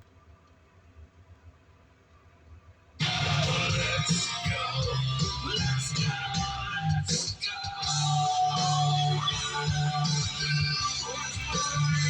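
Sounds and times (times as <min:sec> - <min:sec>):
music through car speakers: 0:03.0 - 0:12.0
steady bass line: 0:03.0 - 0:12.0.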